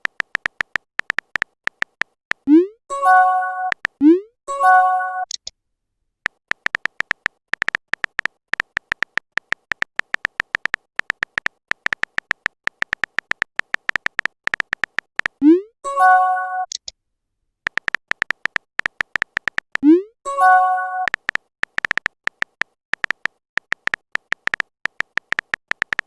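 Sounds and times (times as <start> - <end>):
phone keyboard tapping clicks: 0.0 - 2.5, 3.6 - 4.0, 6.2 - 15.4, 17.7 - 19.9, 21.0 - 26.0
message notification tone: 2.5 - 5.4, 15.4 - 16.8, 19.8 - 21.2.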